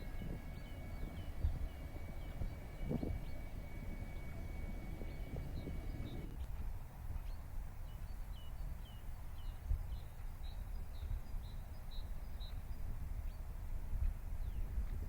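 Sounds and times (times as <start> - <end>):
bird chirping: 0.0 - 6.5
low rumbling outdoor noise: 0.0 - 15.0.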